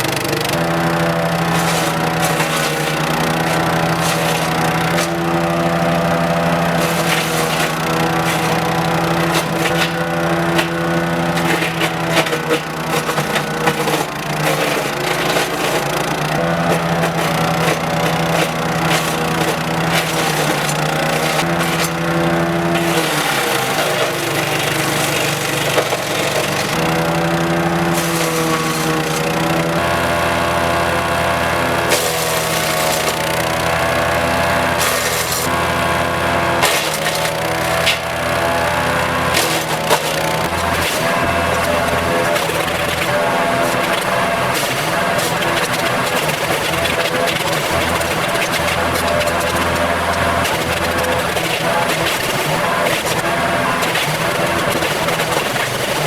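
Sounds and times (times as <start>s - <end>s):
wood chipper clicks and knocks: 0.0s - 56.0s
wood chipper engine running: 0.0s - 56.0s.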